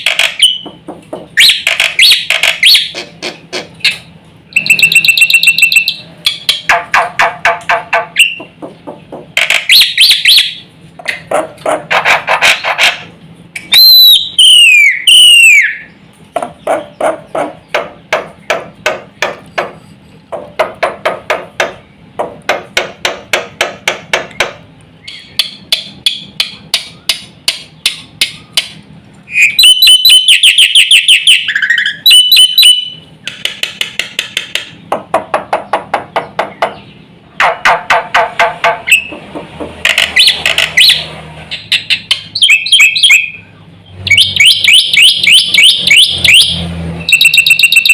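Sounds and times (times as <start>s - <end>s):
bird rattling chatter: 1.4s - 3.0s
bird whistles: 1.4s - 3.0s, 3.9s - 6.0s, 13.6s - 15.9s, 29.3s - 33.0s, 41.7s - 43.5s.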